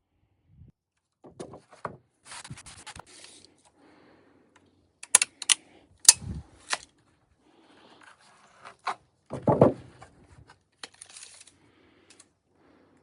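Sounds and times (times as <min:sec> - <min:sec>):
wooden boards knocking and clicking: 0:01.2 - 0:02.1, 0:09.3 - 0:10.1
heavy wooden thump: 0:09.3 - 0:10.0.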